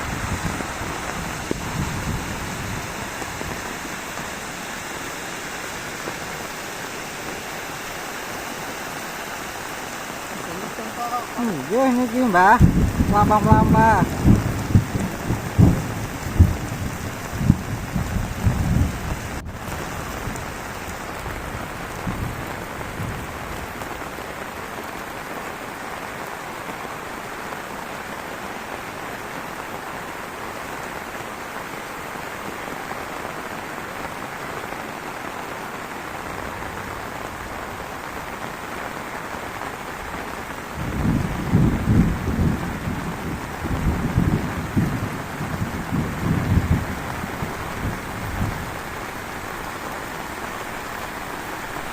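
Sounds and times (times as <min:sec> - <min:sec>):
low rumbling thunder: 0:00.0 - 0:04.4, 0:11.7 - 0:23.8, 0:40.7 - 0:48.9
heavy rain: 0:00.0 - 0:51.9.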